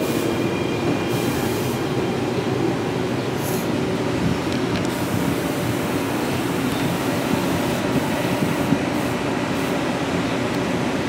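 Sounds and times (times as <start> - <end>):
train rumbling and humming: 0.0 - 11.0.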